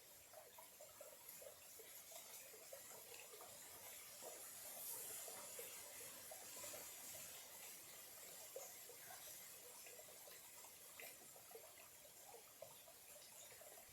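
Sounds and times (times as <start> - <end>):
stream trickling: 0.0 - 13.9
soft hiss: 1.6 - 11.4.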